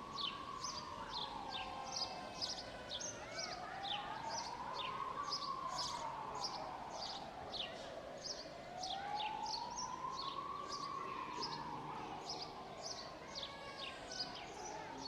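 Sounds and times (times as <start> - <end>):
distant siren wailing: 0.1 - 2.6, 8.7 - 12.7.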